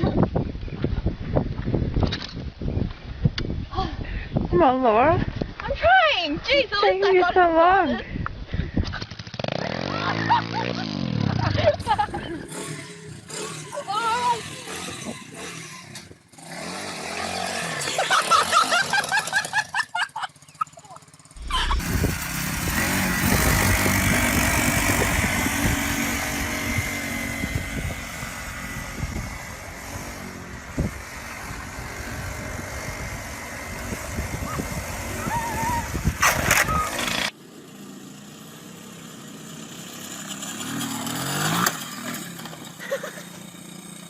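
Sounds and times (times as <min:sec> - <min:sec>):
wind on microphone: 0:00.0 - 0:06.8, 0:21.4 - 0:37.0
motorcycle engine running: 0:08.8 - 0:16.5, 0:17.2 - 0:44.0.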